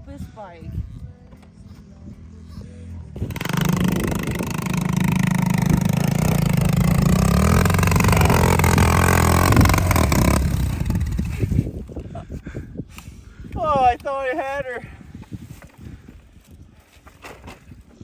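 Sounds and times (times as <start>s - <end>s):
dirt bike engine revving: 3.2s - 11.6s.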